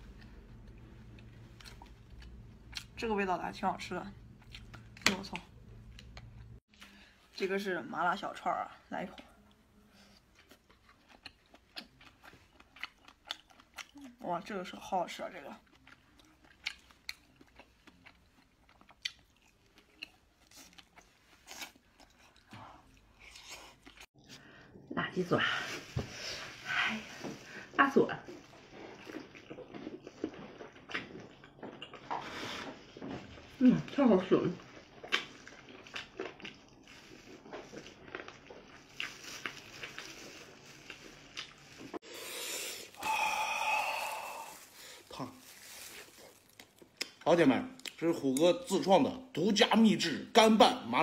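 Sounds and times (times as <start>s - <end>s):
person chewing snacks: 10.3s - 14.2s, 15.6s - 24.1s, 28.3s - 32.4s, 34.6s - 47.2s.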